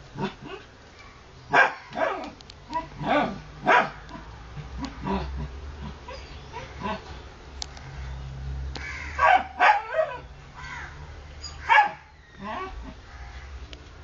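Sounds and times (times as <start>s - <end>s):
puppies squealing and whimpering: 6.0s - 7.1s, 11.4s - 13.0s.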